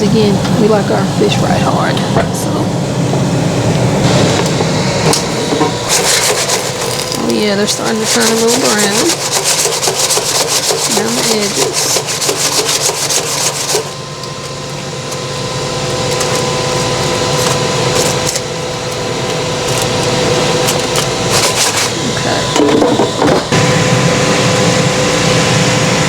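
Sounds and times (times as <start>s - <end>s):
air fryer fan whirring: 0.0s - 26.0s
knocks and rubbing: 5.0s - 13.9s.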